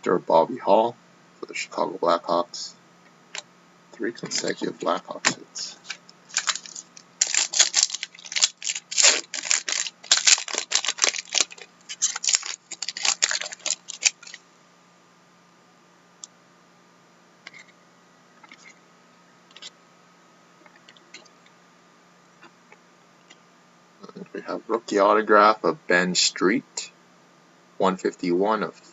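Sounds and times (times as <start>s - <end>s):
foil wrapper crackling: 5.9s - 14.4s.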